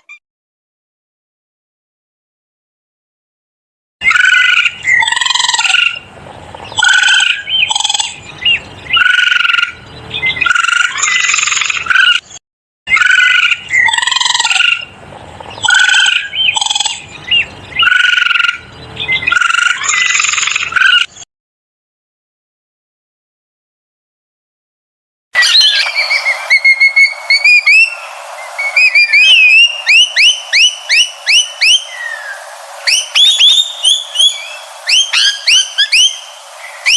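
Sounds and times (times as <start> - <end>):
pitched animal calls: 4.0 - 12.2, 12.9 - 21.1, 25.4 - 36.9.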